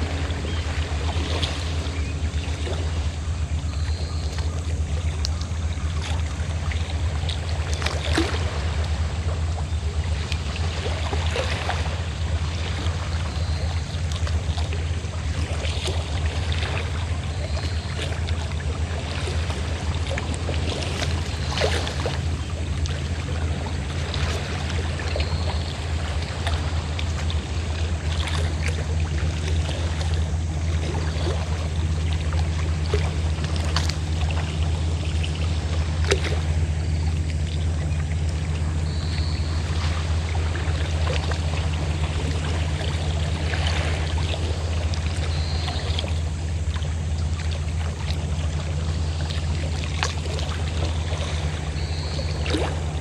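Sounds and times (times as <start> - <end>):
boat engine humming: 0.0 - 53.0
water lapping against boat: 0.0 - 53.0.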